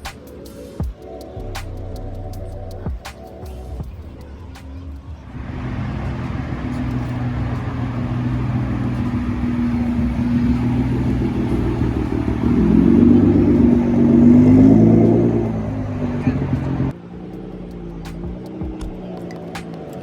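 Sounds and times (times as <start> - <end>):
car engine revving: 5.3 - 20.0.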